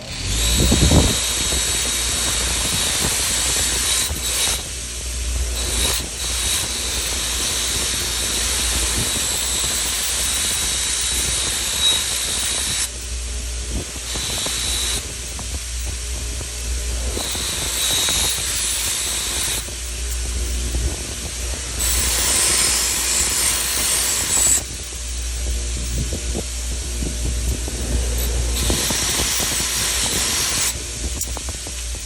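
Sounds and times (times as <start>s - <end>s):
blade hissing against wheel: 0.0s - 32.0s
sharpener wheel whining: 0.0s - 32.0s.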